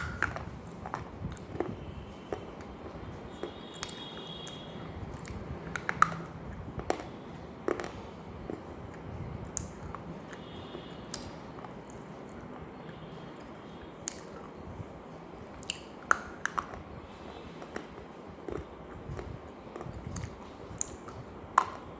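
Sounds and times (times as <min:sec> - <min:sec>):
crunchy food being chewed: 0:00.0 - 0:14.6, 0:15.6 - 0:21.9.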